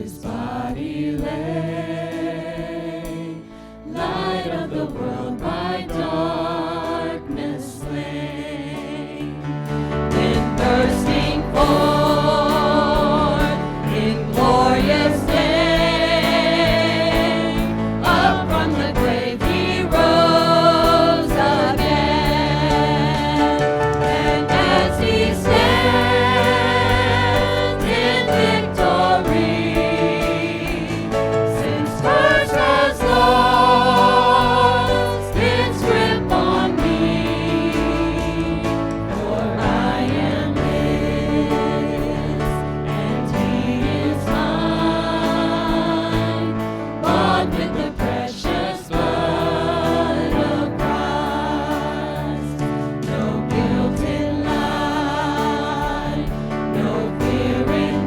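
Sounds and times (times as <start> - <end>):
congregation singing a hymn: 0.0 - 58.0
instrumental accompaniment: 0.0 - 58.0.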